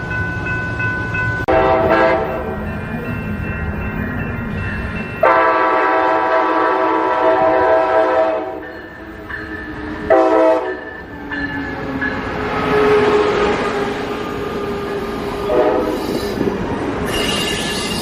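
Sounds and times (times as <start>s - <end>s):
train rumbling: 0.0s - 18.0s
train horn blasts: 1.5s - 2.6s, 5.2s - 8.7s, 10.1s - 10.9s, 15.4s - 16.2s.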